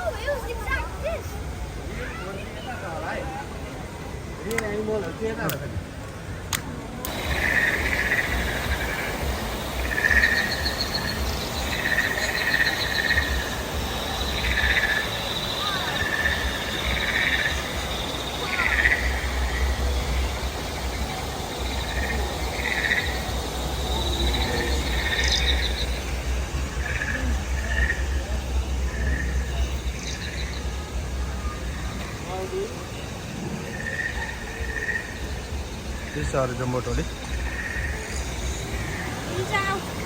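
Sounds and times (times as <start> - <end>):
frogs croaking: 0.0 - 40.0
high insect trill: 7.1 - 40.0
low rumble: 18.9 - 32.2.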